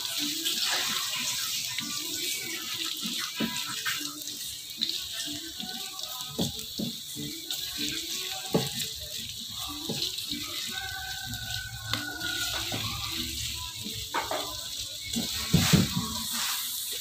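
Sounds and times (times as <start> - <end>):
shallots sizzling in oil: 0.0 - 17.0
spatula knocking and scraping pan: 14.0 - 14.6.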